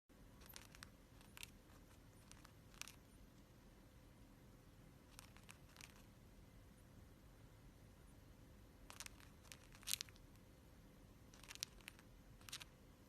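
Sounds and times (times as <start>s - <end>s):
faint clicks and scratches: 0.4s - 3.5s, 5.1s - 6.1s, 8.9s - 10.4s, 11.3s - 12.8s.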